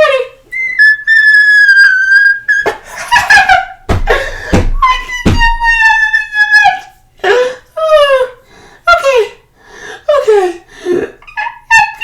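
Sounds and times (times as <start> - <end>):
thumps: 3.9 - 5.9.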